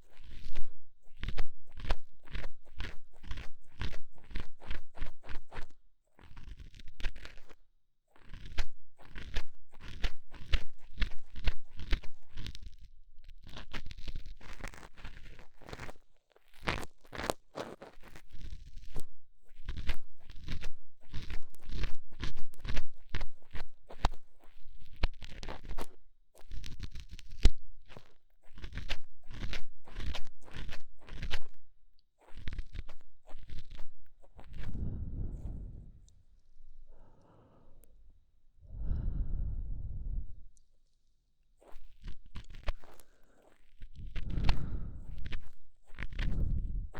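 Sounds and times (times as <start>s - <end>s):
tool scraping inside ear microphone: 32.2s - 36.8s, 41.6s - 46.9s.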